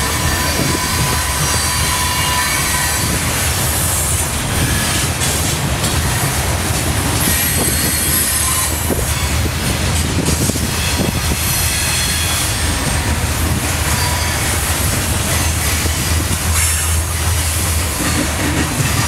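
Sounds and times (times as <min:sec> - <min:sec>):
steel wheels rumbling on rail: 0:00.0 - 0:19.0
high-pitched wheel squeal: 0:00.1 - 0:03.2, 0:07.2 - 0:09.3, 0:13.8 - 0:14.7.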